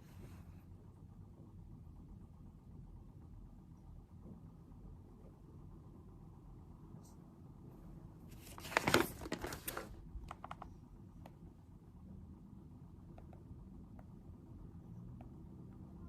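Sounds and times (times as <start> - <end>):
crinkling rustle: 8.3 - 9.9.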